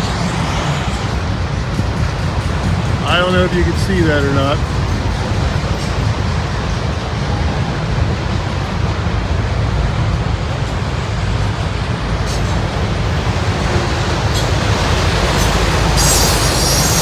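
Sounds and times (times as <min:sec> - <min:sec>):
freight train rolling past: 0:00.0 - 0:17.0.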